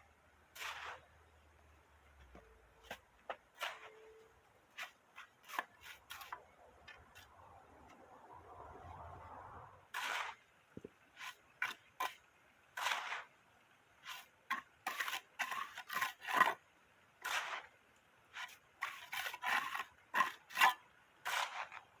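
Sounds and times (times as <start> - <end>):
scraping strokes: 0.6 - 1.2, 3.6 - 7.5, 9.9 - 10.5, 11.2 - 12.2, 12.8 - 13.3, 17.2 - 17.7, 18.3 - 21.9.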